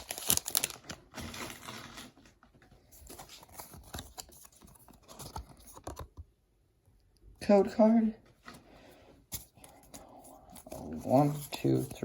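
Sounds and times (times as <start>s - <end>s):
foil and cards rustling: 0.0s - 5.4s.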